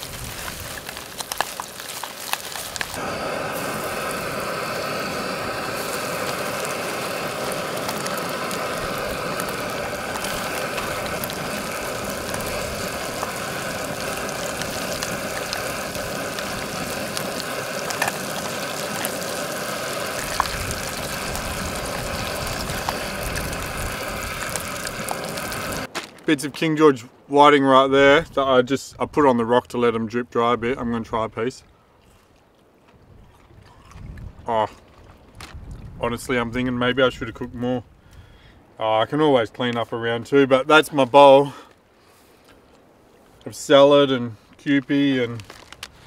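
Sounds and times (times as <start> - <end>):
fish sizzling in hot oil: 0.0 - 25.9.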